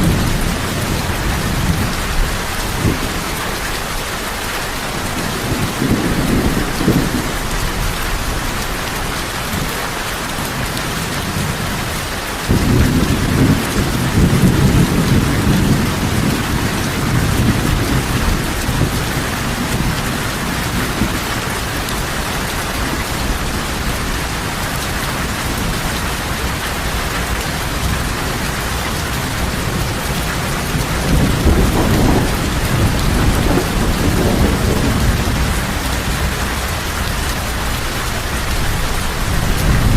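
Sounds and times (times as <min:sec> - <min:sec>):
heavy rain: 0:00.0 - 0:39.9
rolling thunder: 0:05.0 - 0:09.7, 0:10.5 - 0:39.9.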